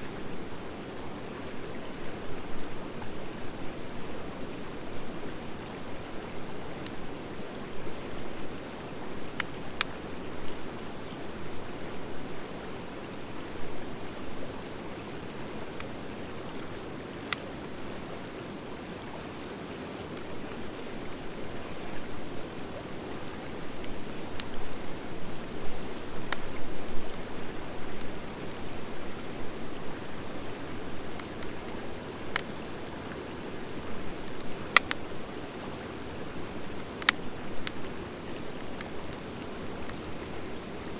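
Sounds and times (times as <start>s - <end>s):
wood fire burning: 6.5s - 14.3s, 15.0s - 40.9s
wood crackles and pops: 9.0s - 11.0s, 15.7s - 28.7s, 29.8s - 40.7s.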